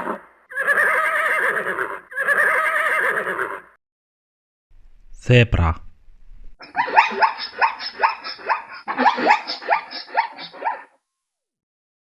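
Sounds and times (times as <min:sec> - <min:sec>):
zebra barking yelps: 0:06.5 - 0:10.9.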